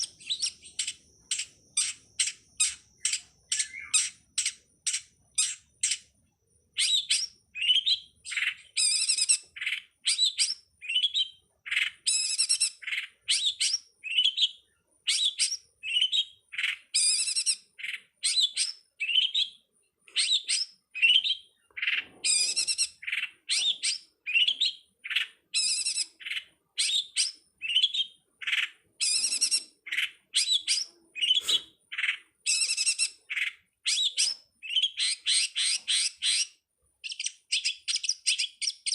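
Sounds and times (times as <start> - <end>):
shrike chirping: 0.0 - 6.1.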